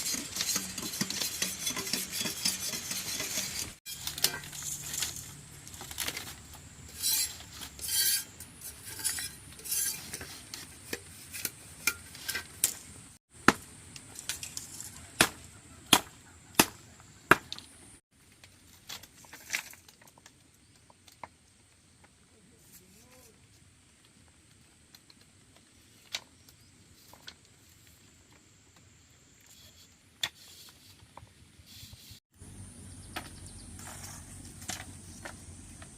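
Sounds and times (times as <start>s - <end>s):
utensils clinking on pots and dishes: 0.0s - 5.3s.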